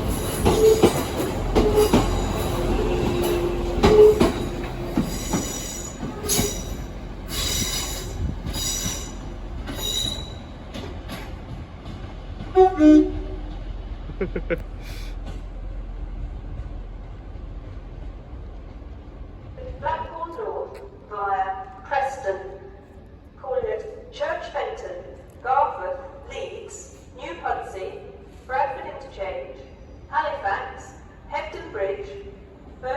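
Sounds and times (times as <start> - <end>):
train wheels squealing: 0.0 - 10.7
train rumble: 0.0 - 21.0.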